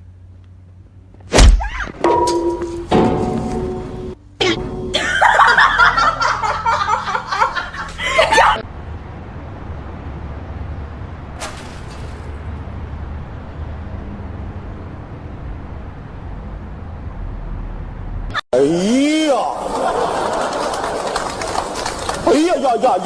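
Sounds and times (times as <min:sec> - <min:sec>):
person laughing hard: 0:05.0 - 0:08.6.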